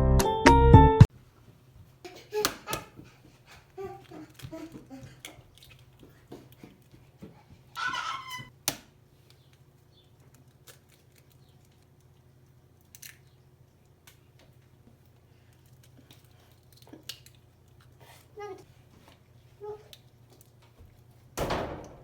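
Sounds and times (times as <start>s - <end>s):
short squeaky chirps: 7.8s - 8.5s.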